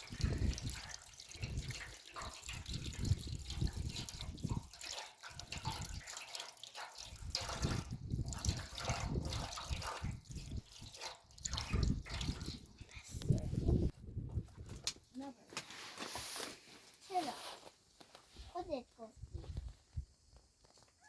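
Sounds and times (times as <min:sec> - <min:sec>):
water trickling and splashing: 0:00.0 - 0:15.3.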